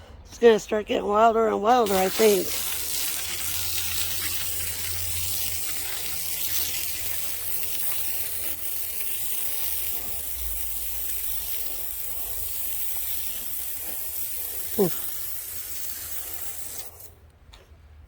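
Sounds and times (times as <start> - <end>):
saw blade cutting log: 1.8 - 11.9
motor humming: 1.8 - 17.2.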